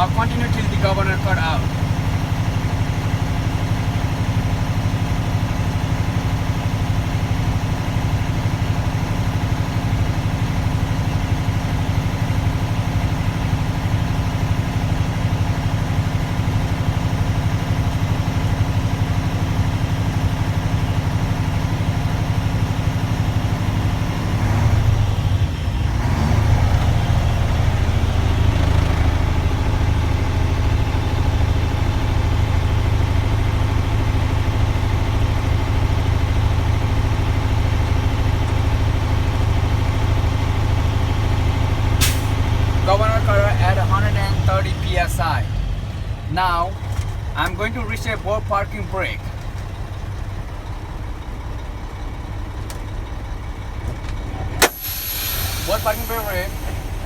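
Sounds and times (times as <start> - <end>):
diesel truck engine running: 0.0 - 57.0
air compressor building pressure: 42.0 - 42.4, 54.6 - 57.0.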